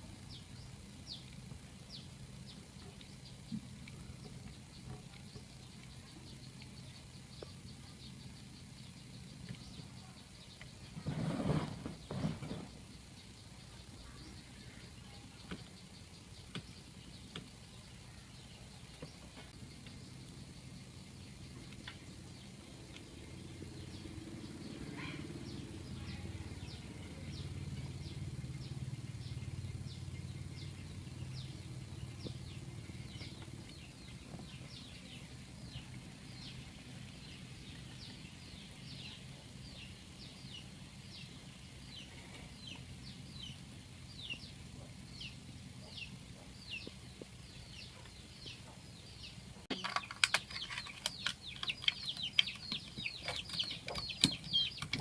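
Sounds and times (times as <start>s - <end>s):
small bird calling: 0.0s - 55.0s
burst of clicks and chirps: 49.7s - 55.0s.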